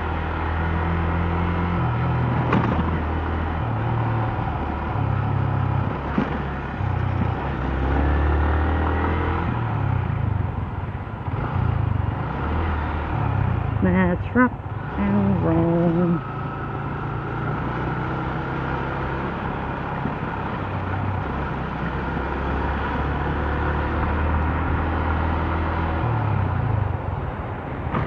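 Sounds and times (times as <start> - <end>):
motorcycle engine running: 9.7 - 27.0.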